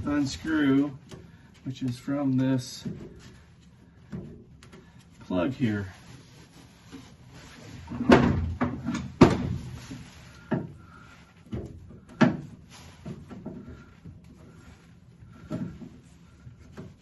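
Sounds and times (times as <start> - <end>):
clunks and knocks on metal door: 7.9 - 9.7.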